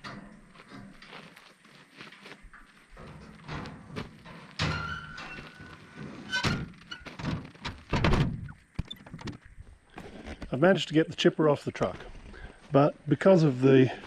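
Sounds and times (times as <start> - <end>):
heavy metal thunks and clanks: 3.0 - 8.5.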